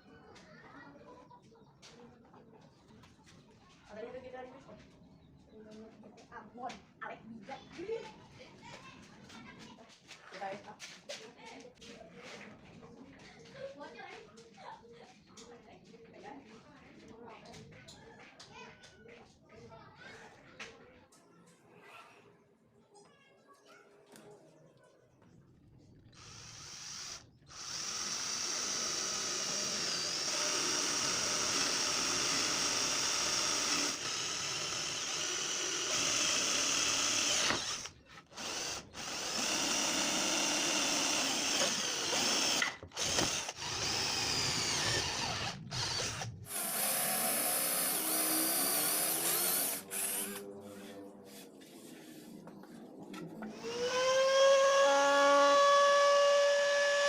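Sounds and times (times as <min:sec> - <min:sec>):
electric drill running: 0:26.1 - 0:51.4, 0:53.4 - 0:57.0.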